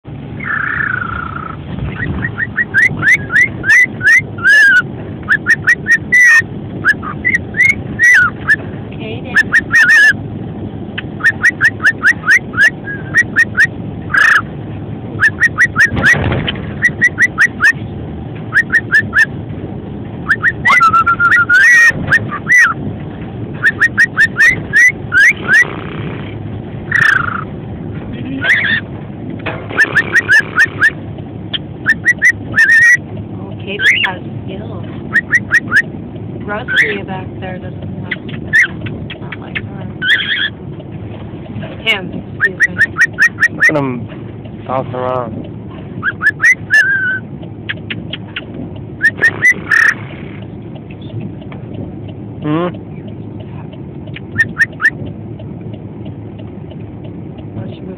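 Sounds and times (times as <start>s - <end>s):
low background hum: 0.1s - 57.9s
cockatiel whistling: 0.4s - 8.6s, 9.3s - 10.2s, 11.2s - 14.4s, 15.2s - 16.2s, 16.8s - 17.8s, 18.5s - 19.3s, 20.3s - 22.8s, 23.6s - 25.7s, 26.9s - 27.5s, 28.4s - 28.8s, 29.8s - 31.0s, 31.8s - 33.0s, 33.8s - 34.1s, 35.1s - 35.9s, 36.7s - 37.0s, 38.2s - 38.7s, 40.0s - 40.5s, 42.4s - 43.7s, 46.0s - 47.9s, 49.0s - 50.0s, 54.2s - 55.0s.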